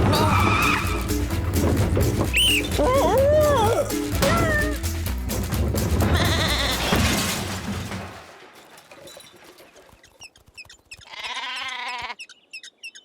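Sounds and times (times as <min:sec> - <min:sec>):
sheep bleating: 0:00.0 - 0:01.4, 0:06.0 - 0:06.9, 0:11.0 - 0:12.2
bird chirps: 0:02.3 - 0:02.9, 0:10.0 - 0:13.0.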